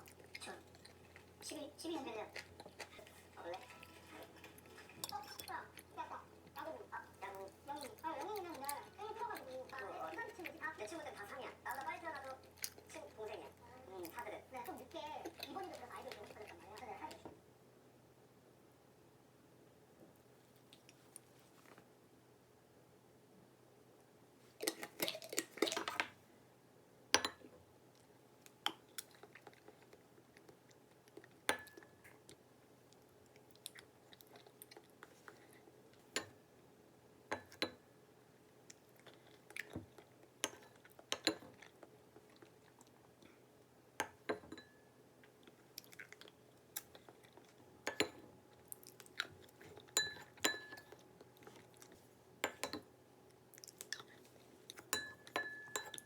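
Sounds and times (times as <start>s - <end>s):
person chewing: 0.0s - 10.9s, 11.7s - 16.4s, 28.8s - 31.4s, 32.3s - 35.7s, 38.6s - 43.4s, 45.2s - 47.6s, 48.5s - 52.1s, 53.5s - 54.9s
cutlery clinking on dishes: 2.6s - 5.8s, 27.2s - 27.6s, 31.5s - 32.0s, 44.0s - 44.9s, 47.9s - 48.3s, 50.0s - 51.0s, 54.9s - 56.0s.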